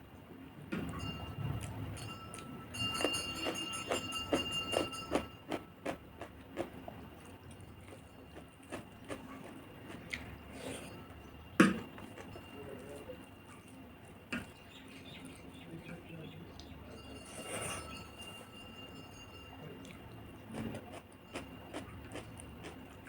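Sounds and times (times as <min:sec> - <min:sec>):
wet chewing clicks: 0:04.7 - 0:10.3, 0:19.8 - 0:23.0.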